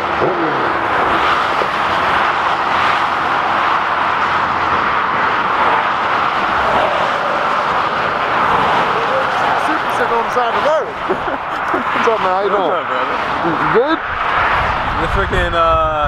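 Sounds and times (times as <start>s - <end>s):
highway traffic rushing: 0.0s - 16.0s.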